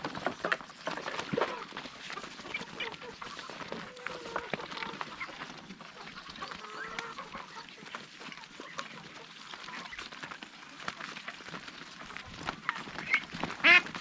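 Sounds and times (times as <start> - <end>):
ducks quacking: 0.3 - 10.0, 12.7 - 14.0.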